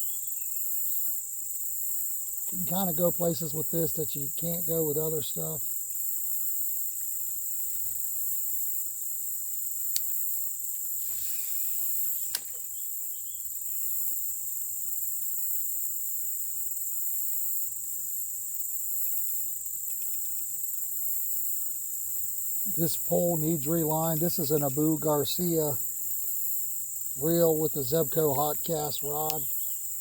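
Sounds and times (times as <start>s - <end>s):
crickets chirping: 0.0s - 30.0s
short hiss: 10.9s - 12.7s
sharp clicks: 29.0s - 29.6s.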